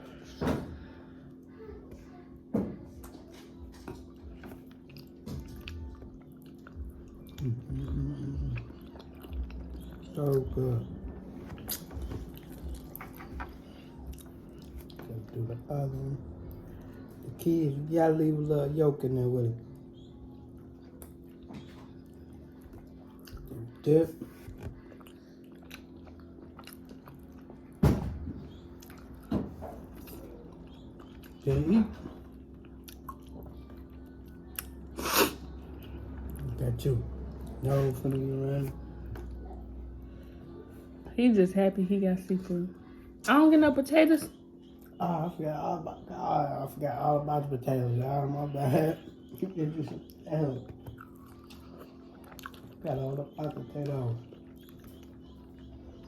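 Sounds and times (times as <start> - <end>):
chewing and biting food: 2.9 - 15.4, 20.5 - 27.8, 28.5 - 39.9, 49.1 - 56.0
chewing and biting egg: 3.0 - 10.8, 11.5 - 13.2, 24.5 - 27.8, 50.0 - 56.0
person humming: 7.4 - 8.7
loud mouth sounds: 35.0 - 35.5.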